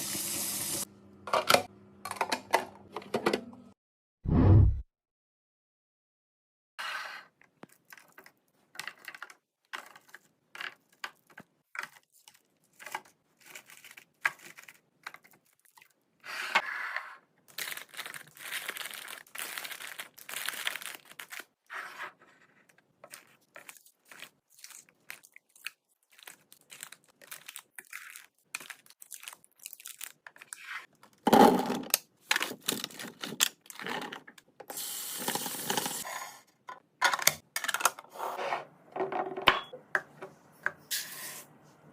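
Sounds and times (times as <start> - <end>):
plastic packaging rustling and tearing: 11.8 - 15.9, 17.5 - 21.7, 23.0 - 31.2, 32.2 - 34.0.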